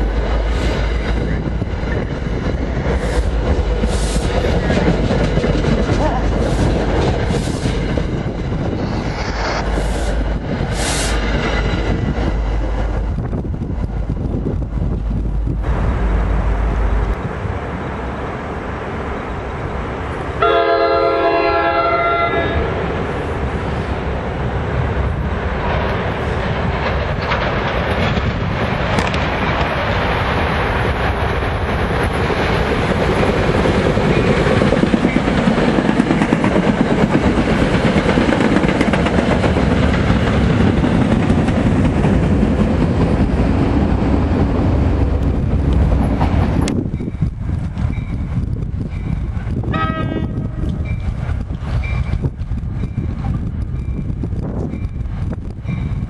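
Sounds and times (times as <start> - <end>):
train rumble and clatter: 0.0 - 56.0
train horn chord: 20.4 - 22.8, 49.7 - 50.8.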